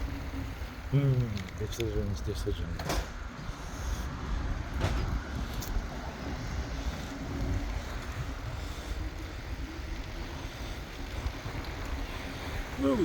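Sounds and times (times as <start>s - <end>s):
bike tyres on road: 0.0s - 13.0s
wind rumble on microphone: 0.0s - 13.0s.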